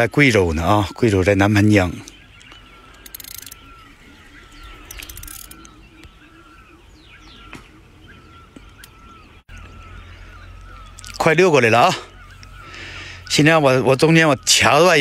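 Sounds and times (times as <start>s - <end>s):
bird chirping repeatedly: 0.0s - 15.0s.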